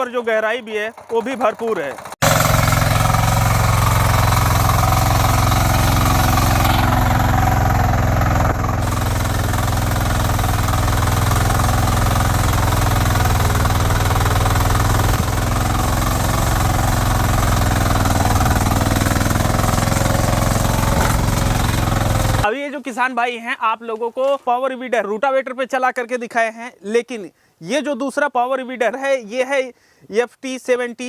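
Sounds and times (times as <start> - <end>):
rotary tines tilling soil: 0.0 - 22.5
diesel engine running under load: 0.9 - 22.5.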